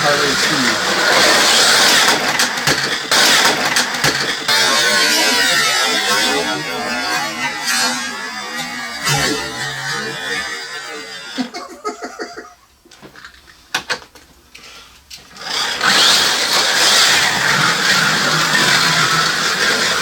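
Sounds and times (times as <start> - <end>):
slot car motors whining: 0.0 - 12.5, 15.2 - 20.0
sharp clicks: 1.6 - 4.7.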